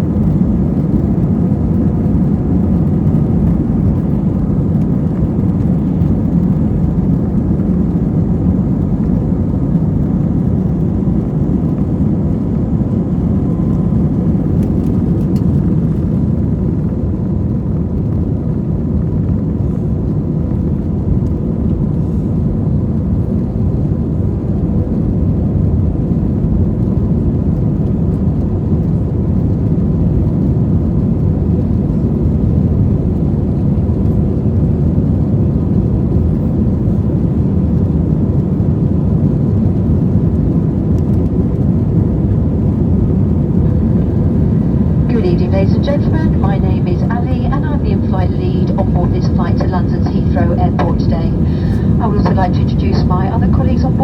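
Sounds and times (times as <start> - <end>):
jet engine cabin rumble: 0.0 - 54.0
faint steady whine: 41.0 - 54.0.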